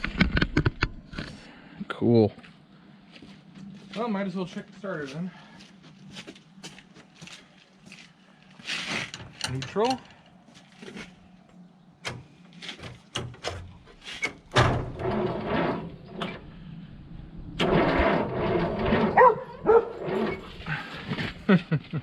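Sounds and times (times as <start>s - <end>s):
starter cranking tractor engine: 17.6s - 19.4s
dog barking: 19.2s - 20.0s.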